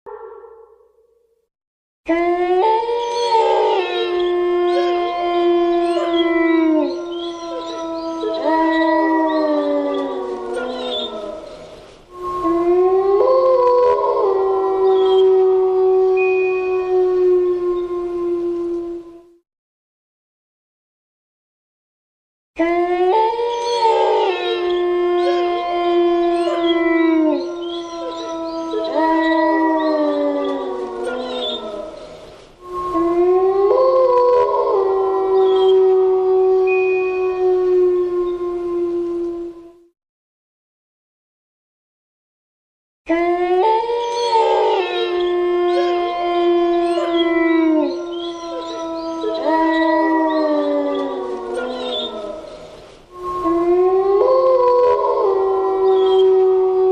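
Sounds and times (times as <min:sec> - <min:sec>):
dogs howling: 0:02.1 - 0:19.3, 0:22.6 - 0:39.8, 0:43.1 - 0:56.9.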